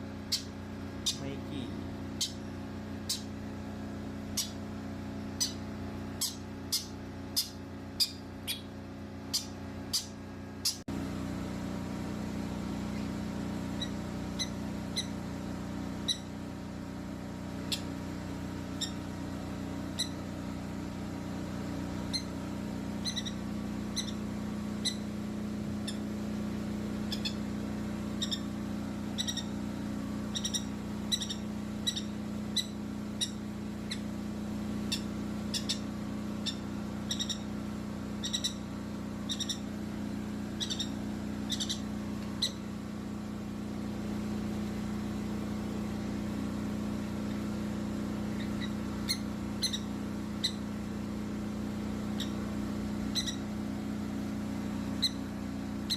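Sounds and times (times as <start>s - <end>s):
steady low hum: 0.0s - 55.9s
baby bird peeping: 0.1s - 3.4s, 4.3s - 8.7s, 9.3s - 10.8s, 13.8s - 15.2s, 16.0s - 16.4s, 17.6s - 18.0s, 18.7s - 19.1s, 19.9s - 20.4s, 22.0s - 22.4s, 23.0s - 25.1s, 25.8s - 26.1s, 27.0s - 27.5s, 28.1s - 29.6s, 30.2s - 34.1s, 34.8s - 37.6s, 38.2s - 39.7s, 40.5s - 42.7s, 48.3s - 50.7s, 52.1s - 53.5s, 54.9s - 55.9s.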